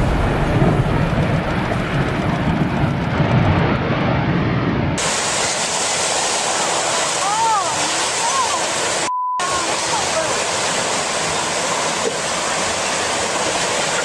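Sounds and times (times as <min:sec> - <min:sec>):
storm low rumbling roar: 0:00.0 - 0:05.6
high rushing hiss: 0:05.0 - 0:14.0.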